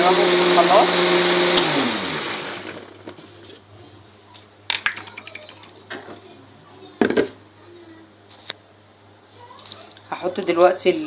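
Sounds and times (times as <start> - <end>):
blender motor spinning down: 0.0 - 3.0.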